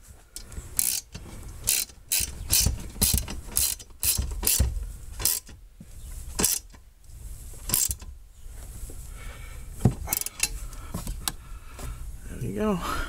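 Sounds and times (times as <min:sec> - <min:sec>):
ratchet wrench clicking: 0:00.4 - 0:05.6, 0:06.4 - 0:06.8, 0:07.7 - 0:08.1, 0:10.1 - 0:10.6.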